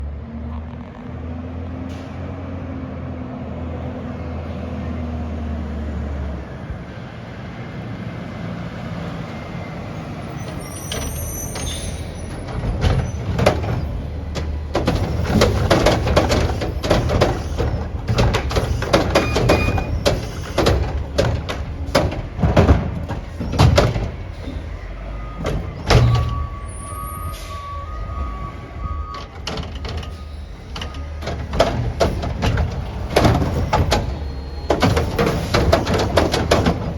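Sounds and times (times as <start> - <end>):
diesel engine running: 0.0 - 36.9
bangs and clatter of dumping: 10.5 - 36.9.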